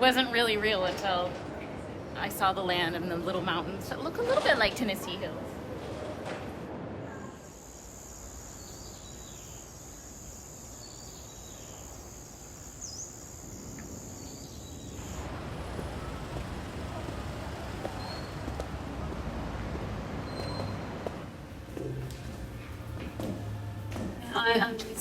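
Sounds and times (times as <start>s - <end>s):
background noise: 0.0s - 25.0s
high-pitched insect drone: 7.4s - 15.2s.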